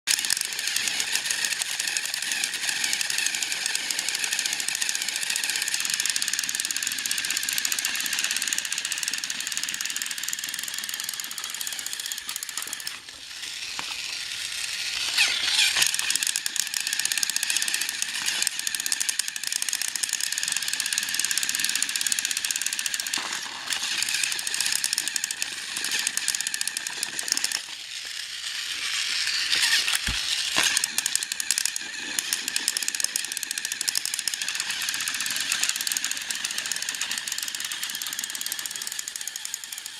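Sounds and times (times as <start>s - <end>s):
toy train motors whirring and rattling: 0.0s - 39.9s.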